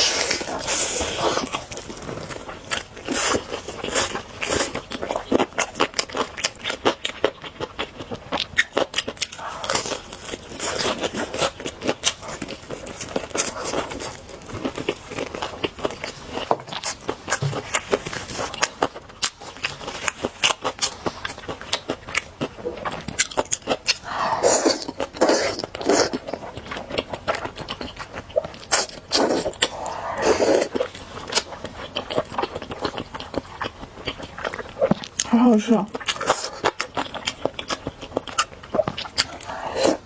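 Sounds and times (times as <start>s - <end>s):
slurping: 0.0s - 6.2s, 23.6s - 27.5s, 28.4s - 31.6s, 36.0s - 40.0s
chewing noodles: 0.0s - 40.0s.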